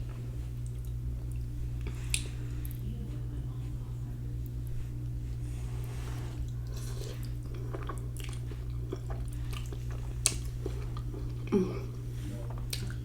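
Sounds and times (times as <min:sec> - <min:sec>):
steady low hum: 0:00.0 - 0:13.0
person chewing noodles: 0:06.4 - 0:13.0.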